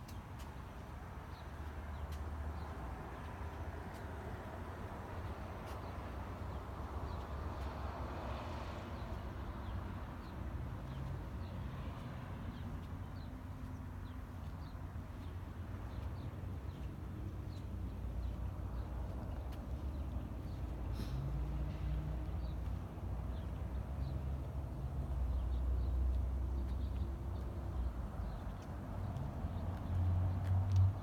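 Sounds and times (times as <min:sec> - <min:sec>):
small birds chirping: 0:10.2 - 0:31.0.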